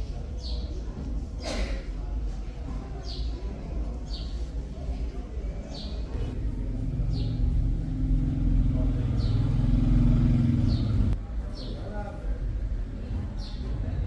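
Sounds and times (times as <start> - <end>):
motor hum: 6.2 - 11.2.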